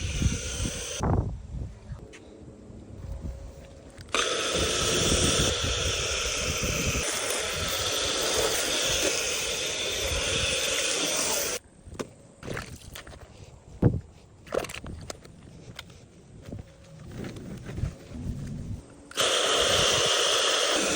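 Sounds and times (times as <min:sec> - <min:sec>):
hose sprayer spraying foam: 0:04.1 - 0:11.6, 0:19.1 - 0:20.9.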